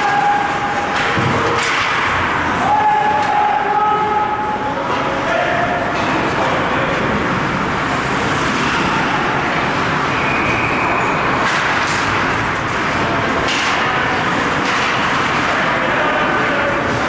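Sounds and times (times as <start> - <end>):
hockey crowd and rink noise: 0.0 - 17.0.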